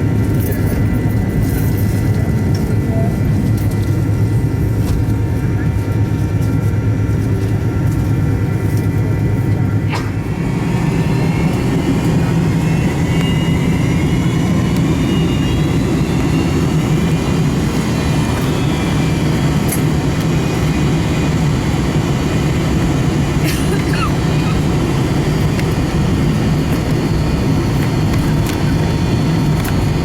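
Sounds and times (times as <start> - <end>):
jet engine rumble in cabin: 0.0 - 30.0
faint rising whine: 9.8 - 23.4.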